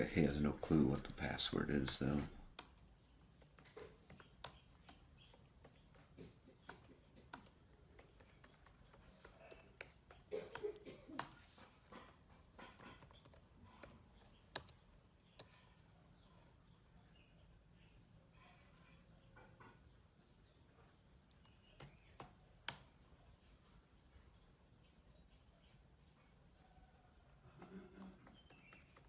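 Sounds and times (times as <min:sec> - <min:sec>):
keyboard typing: 0:00.0 - 0:15.7, 0:21.3 - 0:23.0, 0:27.3 - 0:29.0.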